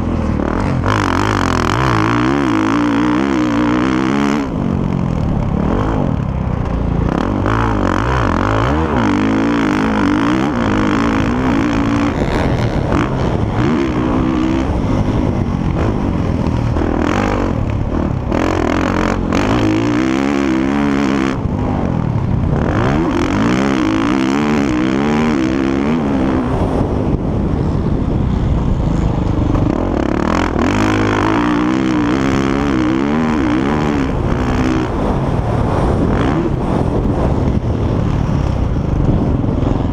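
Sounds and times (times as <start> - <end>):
motorbike engines revving: 0.0 - 39.9.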